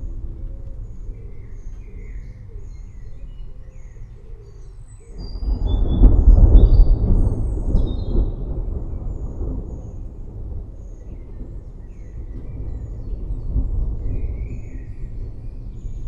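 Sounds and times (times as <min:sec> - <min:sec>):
birds chirping: 0:00.0 - 0:10.1
distant thunder rolling: 0:05.2 - 0:16.0.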